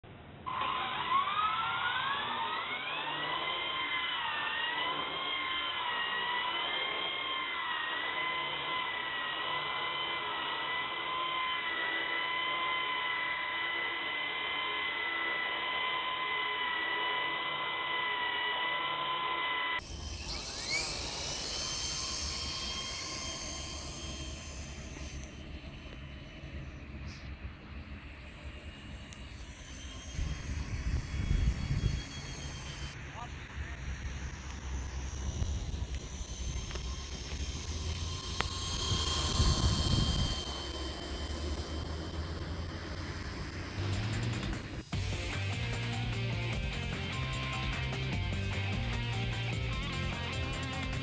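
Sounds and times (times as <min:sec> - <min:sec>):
rc helicopter rotor whine: 0:00.1 - 0:51.0
low wind rumble: 0:19.8 - 0:45.4.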